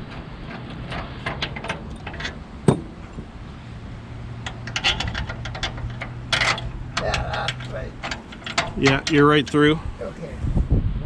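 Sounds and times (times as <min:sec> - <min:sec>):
sharp metallic knock: 0:02.7 - 0:03.0
metal tools clinking: 0:04.4 - 0:09.7.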